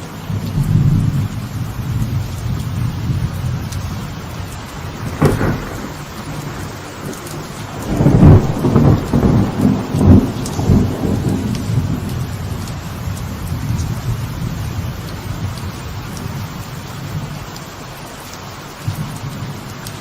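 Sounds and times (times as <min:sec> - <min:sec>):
light rain on a veranda: 0:00.0 - 0:20.0
rolling thunder rumble: 0:00.2 - 0:17.4
thunder crack: 0:00.6 - 0:12.6.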